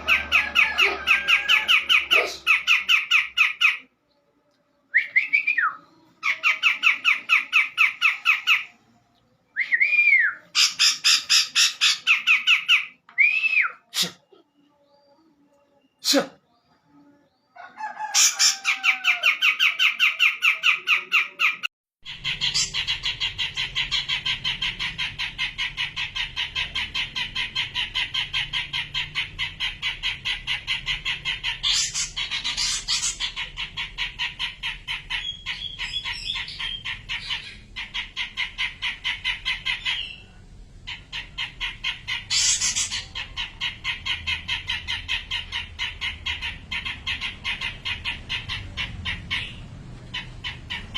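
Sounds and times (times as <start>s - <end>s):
bulbul chattering: 19.4s - 50.9s.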